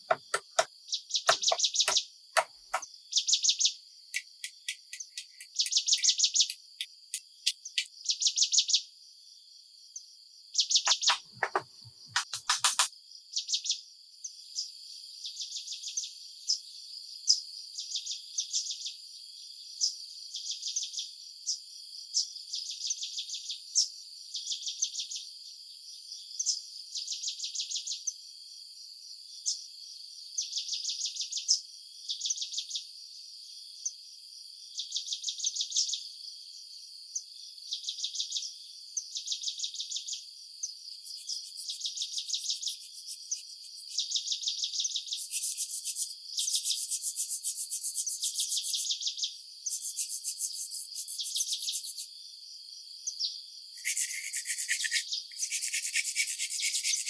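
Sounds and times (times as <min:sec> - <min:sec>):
short sharp chirps: 0:04.2 - 0:07.9, 0:10.9 - 0:12.9, 0:45.2 - 0:52.1, 0:53.8 - 0:57.0
high-pitched insect hum: 0:40.8 - 0:44.0, 0:45.2 - 0:52.1, 0:53.8 - 0:57.0
insects chirping in pulses: 0:40.8 - 0:44.0, 0:45.2 - 0:52.1, 0:53.8 - 0:57.0.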